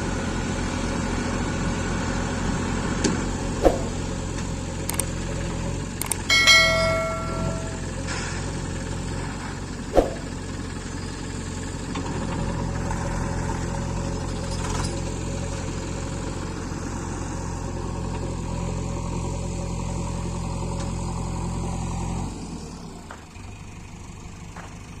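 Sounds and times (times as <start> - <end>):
tractor diesel engine running: 0.0 - 25.0
sharp clank: 3.6 - 4.0, 6.2 - 8.4, 10.0 - 10.4.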